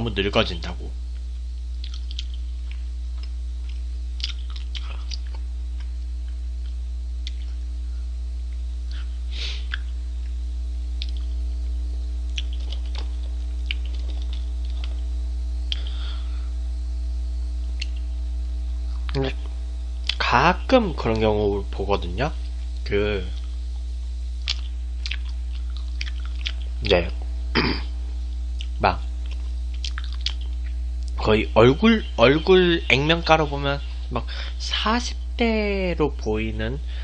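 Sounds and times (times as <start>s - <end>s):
low electrical hum: 0.0s - 37.0s
man chewing: 1.7s - 7.6s, 8.9s - 9.9s, 11.0s - 11.3s, 12.2s - 15.0s, 15.7s - 16.0s, 24.4s - 26.8s, 28.6s - 31.2s
mouth clicks and smacks: 1.7s - 7.6s, 8.9s - 9.9s, 10.9s - 11.3s, 12.2s - 15.0s, 15.6s - 15.9s, 17.8s - 18.1s, 18.9s - 20.2s, 24.4s - 27.2s, 28.6s - 31.2s.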